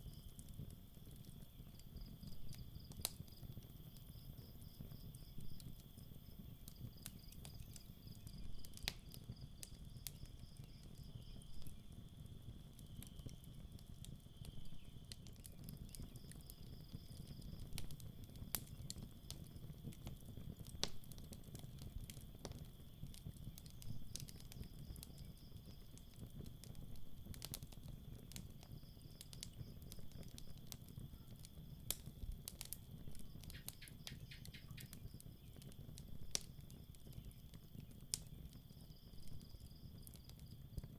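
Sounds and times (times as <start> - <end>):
campfire crackling: 0.0 - 40.9
crickets chirping: 33.0 - 35.7, 36.4 - 40.6.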